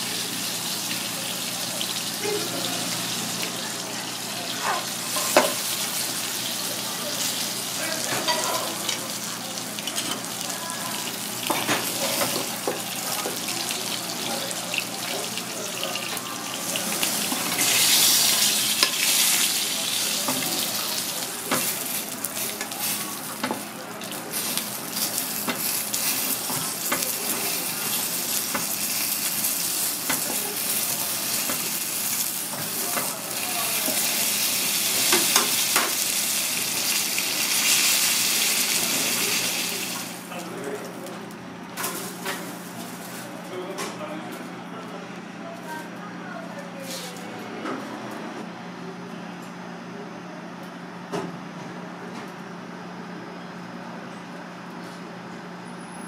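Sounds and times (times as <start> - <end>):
lobster sizzling in hot oil: 0.0 - 40.3.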